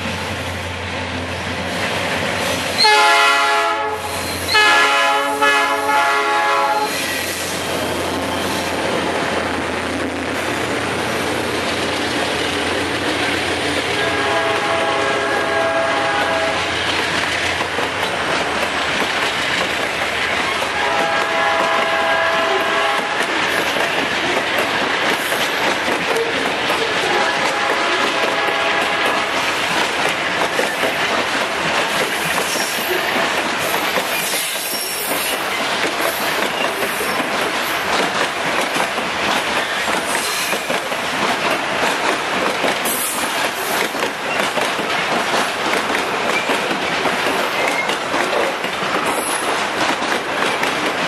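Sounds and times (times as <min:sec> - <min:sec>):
train wheels rumbling on rails: 0:00.0 - 0:51.0
wheels clacking over rail joints: 0:11.4 - 0:51.0.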